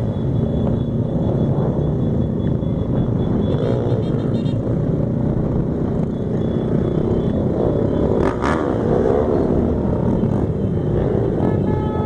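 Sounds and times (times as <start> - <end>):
motorcycle engines revving: 0.0 - 12.0
horn-like tone: 11.3 - 12.0.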